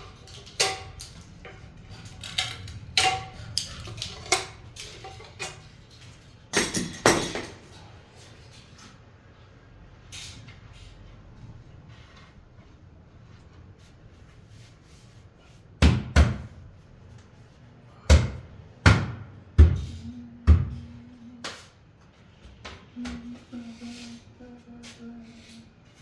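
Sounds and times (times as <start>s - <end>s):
faint low hum: 19.8s - 26.0s.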